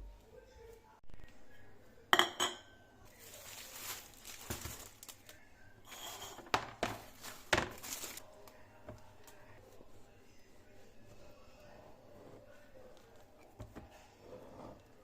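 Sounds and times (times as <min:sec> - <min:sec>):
packaging rustling and crinkling: 0:03.1 - 0:05.4, 0:07.0 - 0:08.2.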